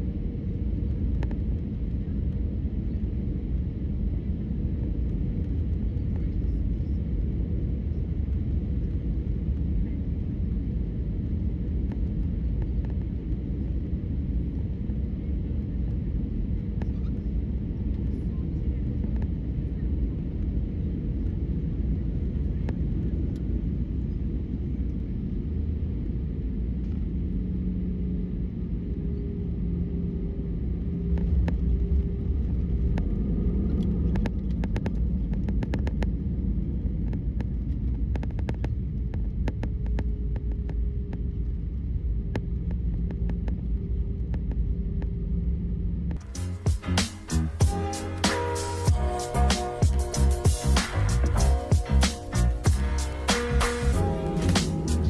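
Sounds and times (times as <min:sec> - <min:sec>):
airplane cabin engine rumble: 0:00.0 - 0:55.0
low humming tones: 0:38.8 - 0:55.0.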